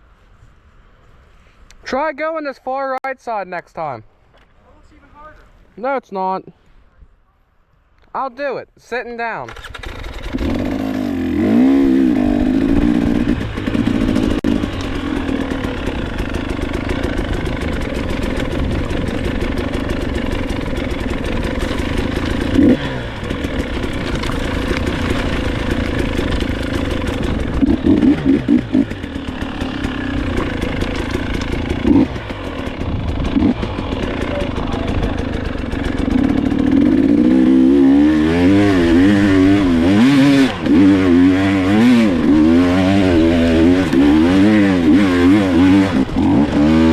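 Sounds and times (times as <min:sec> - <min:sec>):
dirt bike engine revving: 0:09.5 - 0:46.9.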